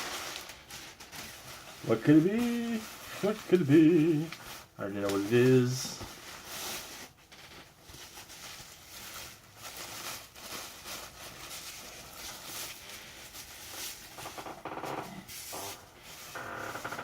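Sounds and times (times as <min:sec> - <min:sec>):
packaging rustling and scraping: 0:00.0 - 0:17.0.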